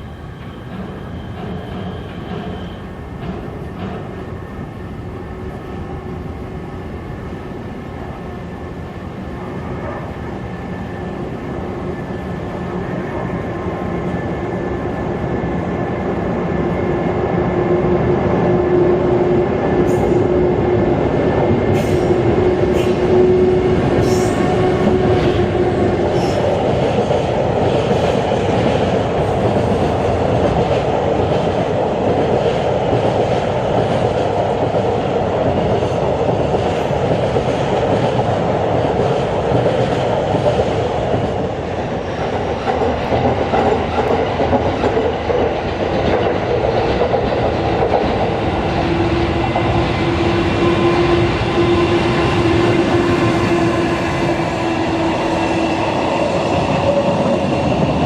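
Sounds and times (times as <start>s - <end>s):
train wheels clacking: 0.0s - 4.3s, 21.6s - 58.0s
train wagons rumbling: 18.6s - 58.0s.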